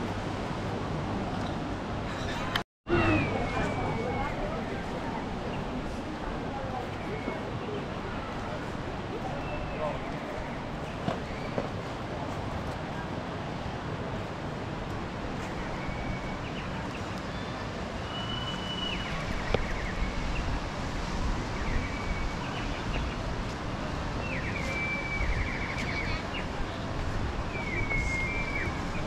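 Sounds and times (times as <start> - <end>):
wind: 0.0 - 29.0
whistled bird calls with trill: 15.7 - 20.2, 24.2 - 26.5, 27.5 - 29.0.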